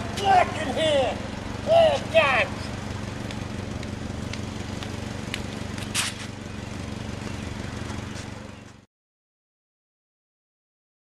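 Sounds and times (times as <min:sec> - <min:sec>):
car engine idling: 0:00.0 - 0:08.9
short sharp hiss: 0:05.9 - 0:06.3.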